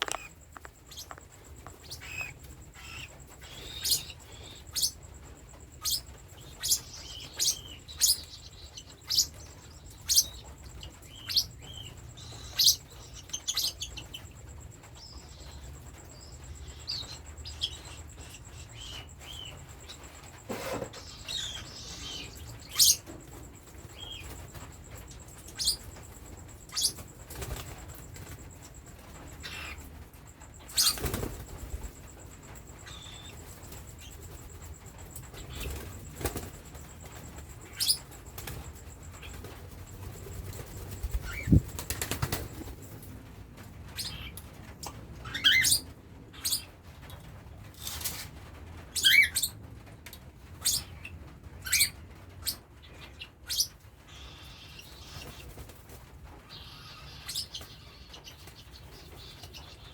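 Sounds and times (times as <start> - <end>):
wings flapping: 0.0 - 5.0, 17.7 - 46.7, 54.8 - 56.5
chicks chirping: 0.0 - 43.0.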